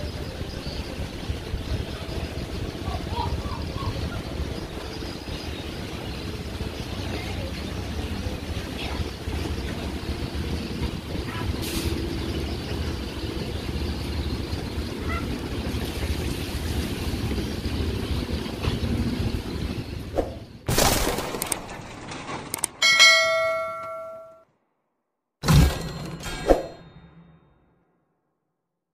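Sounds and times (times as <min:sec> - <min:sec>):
speedboat engines running: 0:00.0 - 0:20.7.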